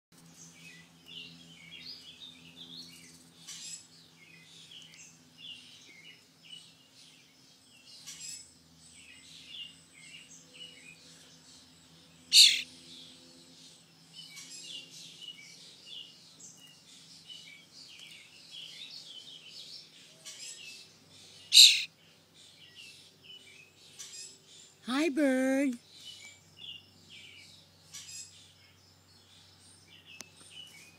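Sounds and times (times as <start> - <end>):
baby bird peeping: 12.2 - 12.7, 21.3 - 21.9.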